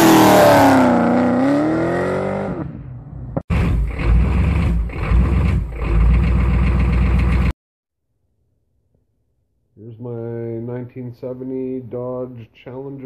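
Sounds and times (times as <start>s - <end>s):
car engine revving hard: 0.0s - 2.8s
heavy low engine rumble: 3.5s - 7.5s.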